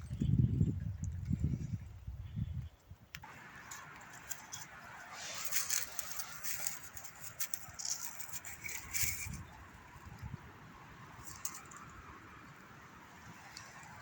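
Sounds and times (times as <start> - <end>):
dry leaves rustling and crackling: 3.2 - 9.7.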